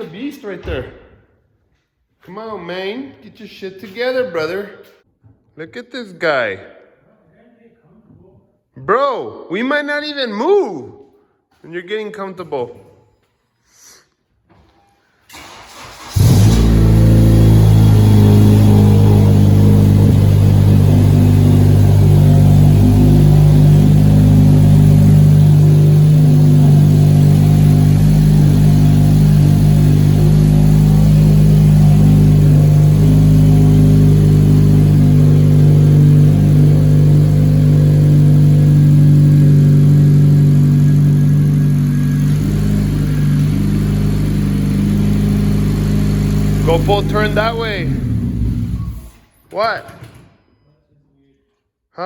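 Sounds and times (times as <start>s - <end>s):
car engine idling: 15.3s - 49.1s.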